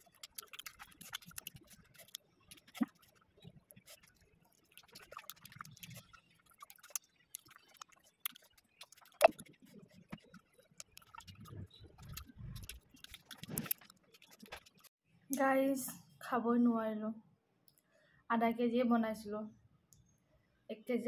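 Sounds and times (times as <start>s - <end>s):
chewing dried meat: 0.0s - 14.9s.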